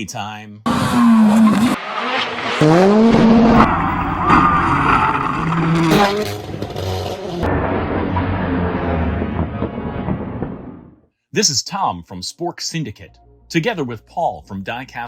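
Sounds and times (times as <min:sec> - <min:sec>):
tyres skidding: 0:00.7 - 0:10.9
car engine revving: 0:00.7 - 0:11.0.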